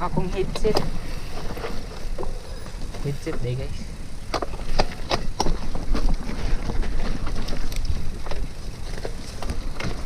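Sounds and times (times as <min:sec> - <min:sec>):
bike clicks and rattles: 0:04.2 - 0:10.0.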